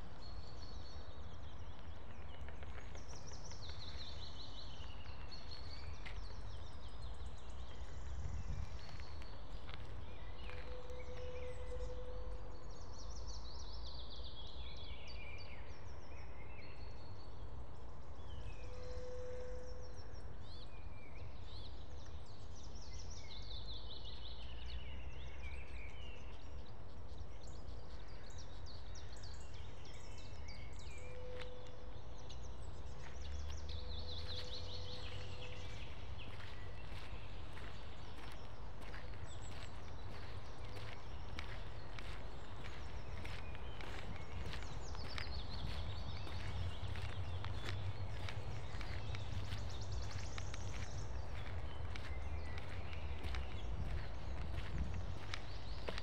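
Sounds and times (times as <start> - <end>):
songbirds singing: 0.0 - 56.0
steady low rumble: 33.4 - 56.0.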